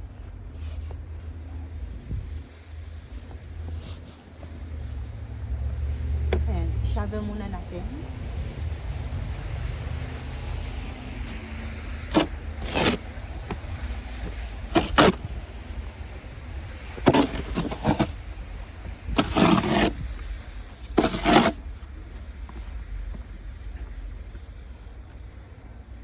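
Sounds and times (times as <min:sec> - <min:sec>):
wind rumble on microphone: 0:00.0 - 0:21.0
snow shovel scraping pavement: 0:09.6 - 0:22.2.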